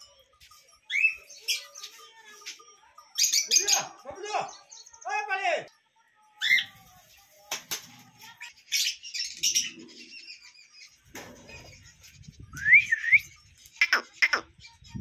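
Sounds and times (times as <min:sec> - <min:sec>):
birds chirping: 0:00.0 - 0:15.0
wings fluttering and rustling: 0:06.6 - 0:08.5.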